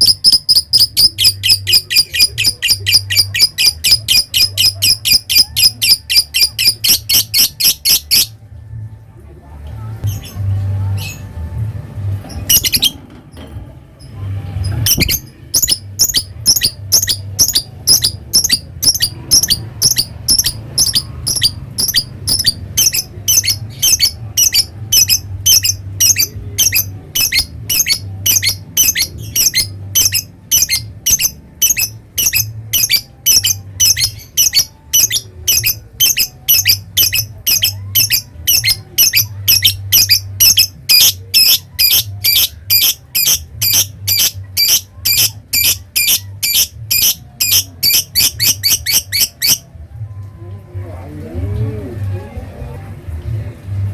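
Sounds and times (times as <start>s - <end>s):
lovebird shrill calls: 14.9s - 49.6s.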